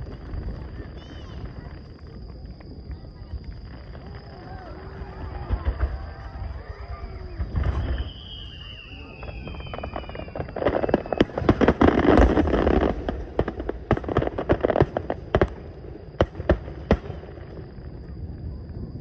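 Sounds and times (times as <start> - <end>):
firework falling whistle: 0.0 - 19.0
fireworks bangs and crackling: 0.0 - 19.0.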